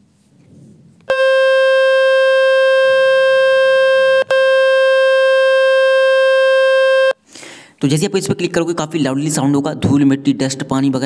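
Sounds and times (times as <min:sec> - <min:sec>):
electronic buzz tone: 0:01.1 - 0:07.2.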